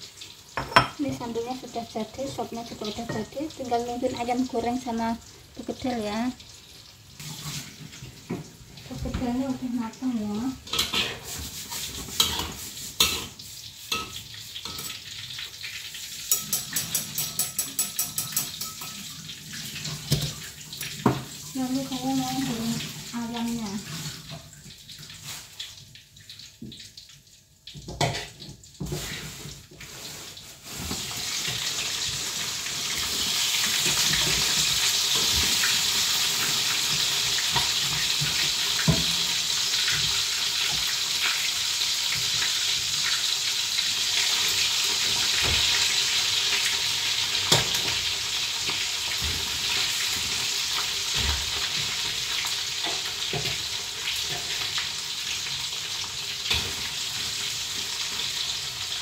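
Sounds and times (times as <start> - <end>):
chicken sizzling in oil: 0.0 - 59.0
pan and utensils knocking: 0.6 - 1.3, 16.3 - 19.2.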